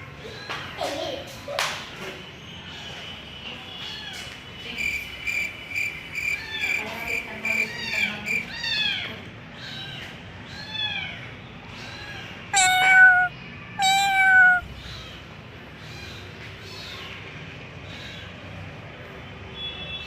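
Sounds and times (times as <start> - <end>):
cat meowing: 7.8 - 15.2.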